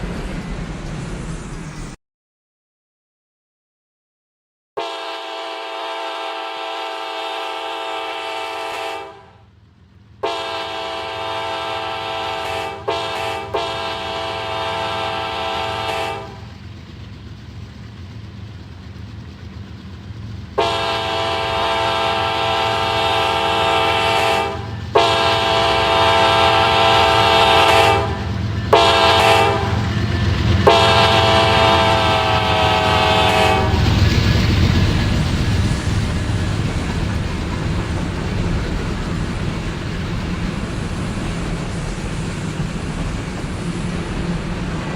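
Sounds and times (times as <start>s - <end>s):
diesel locomotive rumble: 0.0s - 2.0s, 4.8s - 44.9s
locomotive air horn: 4.8s - 9.4s, 10.2s - 16.5s, 20.6s - 30.0s, 30.6s - 33.9s.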